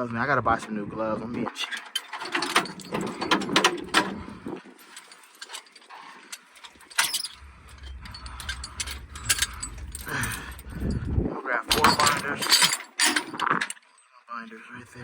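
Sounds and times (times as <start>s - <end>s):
metal chain binders clanking: 1.4s - 14.0s
steady low rumble: 7.0s - 12.2s.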